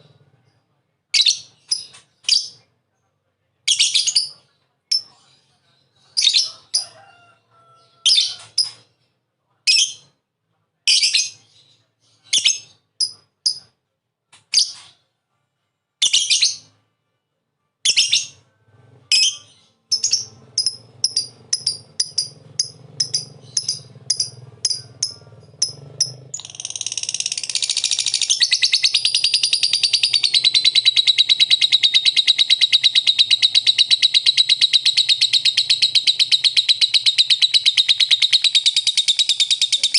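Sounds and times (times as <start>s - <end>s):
lovebird chirping and chattering: 1.2s - 2.6s, 3.7s - 6.8s, 7.8s - 8.9s, 10.9s - 13.7s, 14.5s - 14.9s, 16.0s - 16.7s, 17.8s - 18.4s, 19.1s - 39.9s.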